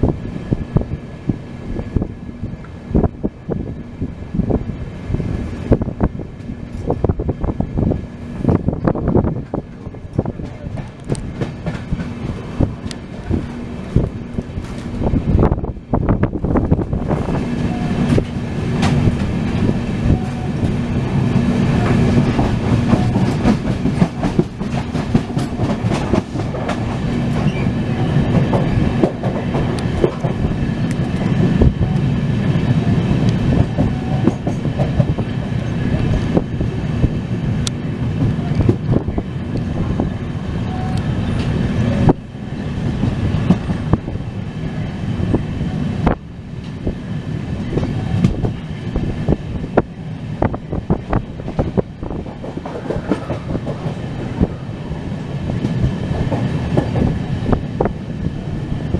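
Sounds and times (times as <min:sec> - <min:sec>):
train rumbling: 0:00.0 - 0:58.9
wheels clicking over rail joints: 0:09.3 - 0:15.5, 0:16.6 - 0:32.0, 0:49.8 - 0:54.7.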